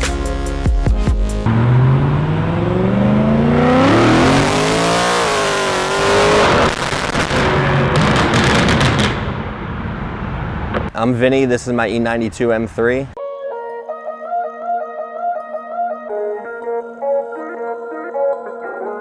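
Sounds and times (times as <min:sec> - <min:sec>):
car engine accelerating hard: 0:01.4 - 0:08.4
exhaust pops and crackles: 0:06.4 - 0:09.4.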